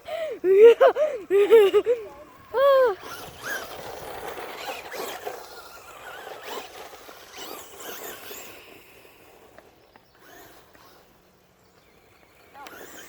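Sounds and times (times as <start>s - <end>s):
electric motor whining: 1.2s - 13.0s.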